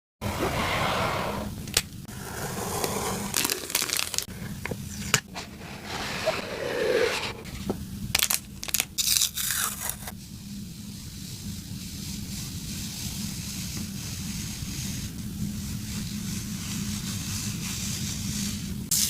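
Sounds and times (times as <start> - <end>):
packaging crinkling and tearing: 3.3 - 4.3, 8.2 - 10.1.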